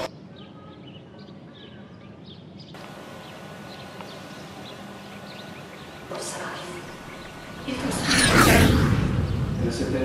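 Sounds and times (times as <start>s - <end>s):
distant birds chirping: 0.0s - 10.0s
background hiss: 2.7s - 10.0s
low hum: 2.8s - 10.0s.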